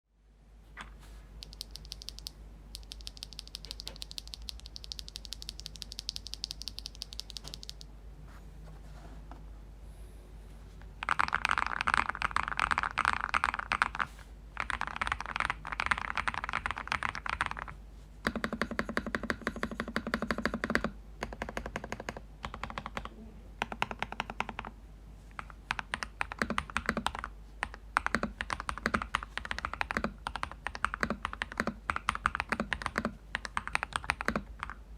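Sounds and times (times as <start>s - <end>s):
fast typing on mechanical keyboard: 1.4s - 7.8s, 11.0s - 24.7s, 25.4s - 34.8s.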